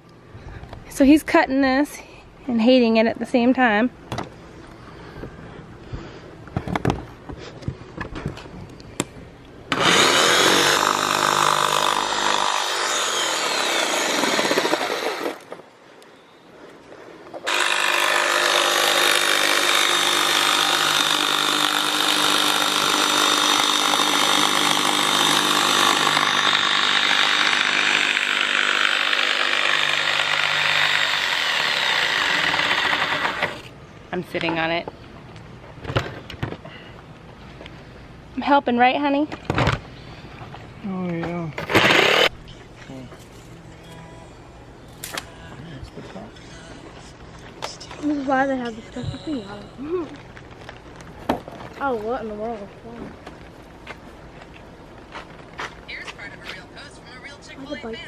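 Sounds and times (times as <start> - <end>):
power saw cutting plastic: 9.7 - 15.5, 17.4 - 33.7, 41.6 - 42.3.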